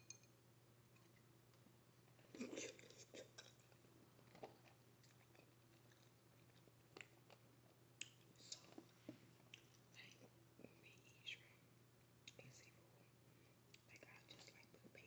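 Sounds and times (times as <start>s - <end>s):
wet chewing: 2.2s - 9.8s.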